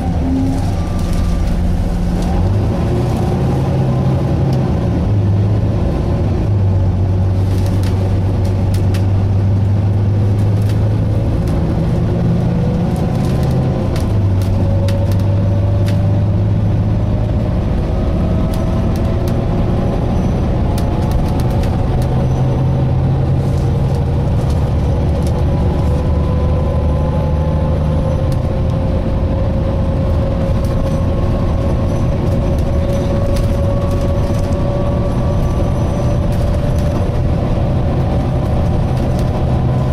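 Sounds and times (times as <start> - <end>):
driveline whine: 0.0 - 4.2
bus engine drone: 0.0 - 39.9
bodywork clicks and rattles: 18.2 - 26.5, 29.9 - 39.9.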